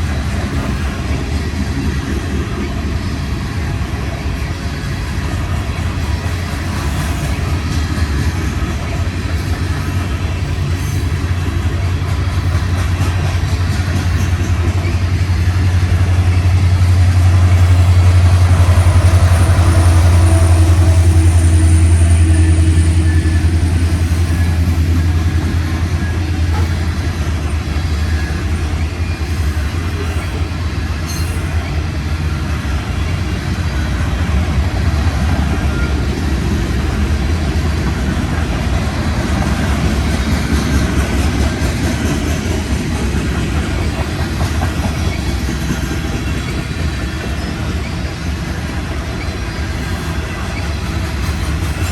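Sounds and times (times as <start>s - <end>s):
freight train rolling past: 0.0s - 51.9s
wheels clacking over rail joints: 22.6s - 51.9s.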